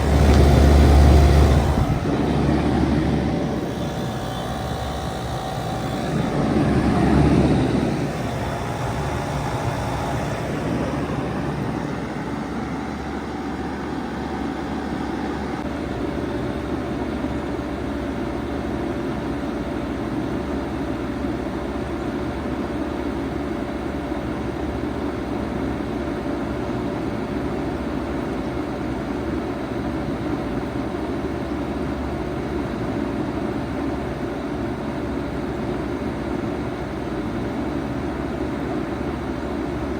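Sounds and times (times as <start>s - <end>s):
heat pump humming: 0.0s - 20.4s.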